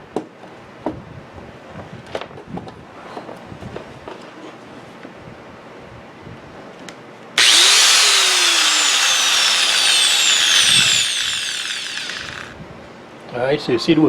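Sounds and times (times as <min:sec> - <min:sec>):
angle grinder high whine: 0:07.4 - 0:12.6.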